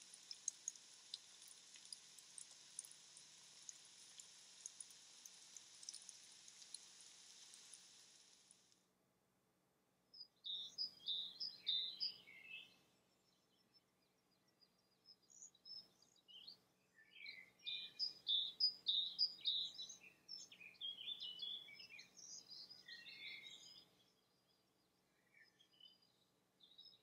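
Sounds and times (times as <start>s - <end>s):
bird chirping: 10.2s - 27.0s.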